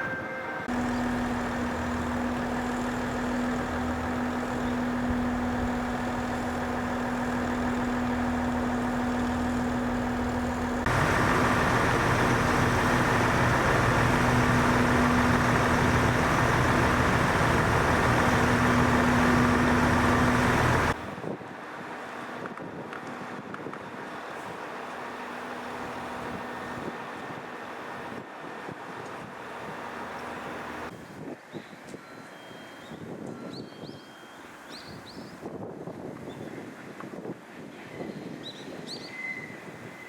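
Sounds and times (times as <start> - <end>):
diesel train engines idling: 0.5 - 22.4, 23.2 - 30.9.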